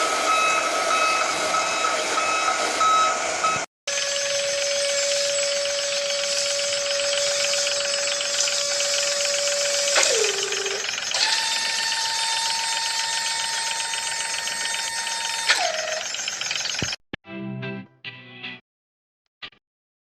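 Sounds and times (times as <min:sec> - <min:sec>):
small electric motor whining: 0:03.9 - 0:17.0.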